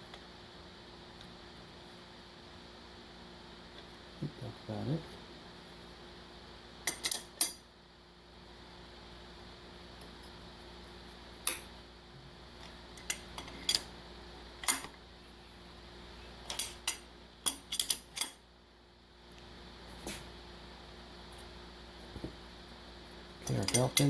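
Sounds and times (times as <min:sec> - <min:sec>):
faint background hum: 0:00.0 - 0:24.0
tools clinking on metal: 0:23.4 - 0:24.0.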